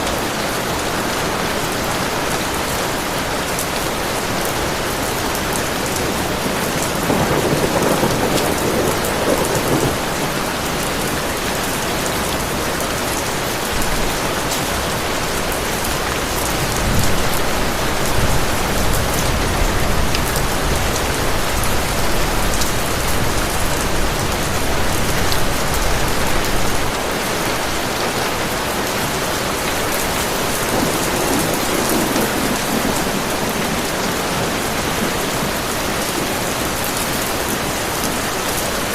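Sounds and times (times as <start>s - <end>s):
heavy rain pouring: 0.0s - 38.9s
thunder rumbling: 4.1s - 13.0s, 28.7s - 38.8s.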